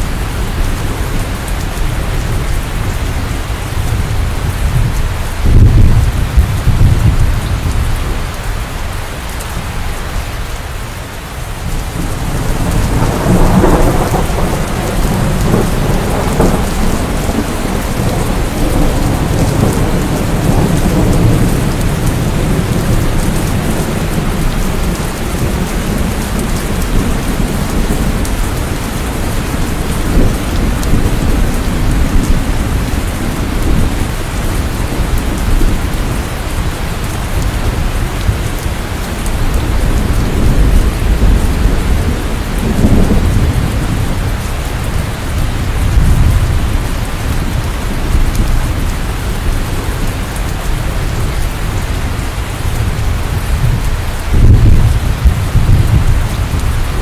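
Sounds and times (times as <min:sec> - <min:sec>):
rolling thunder rumble: 0:00.0 - 0:08.6, 0:11.5 - 0:57.0
heavy rain: 0:00.0 - 0:57.0.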